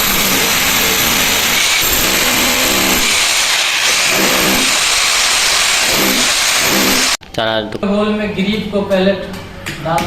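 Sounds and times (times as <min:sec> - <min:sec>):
electric drill grinding into masonry: 0:00.0 - 0:07.2.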